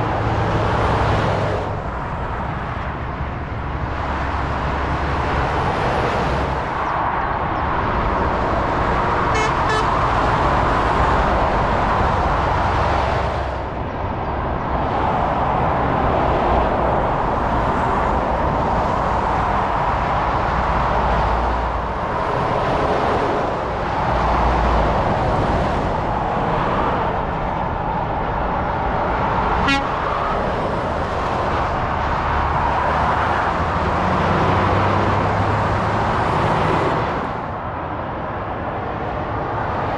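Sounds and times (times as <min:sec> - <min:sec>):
motorway traffic passing: 0:00.0 - 0:39.9
horn toot: 0:09.3 - 0:10.0, 0:29.6 - 0:30.0.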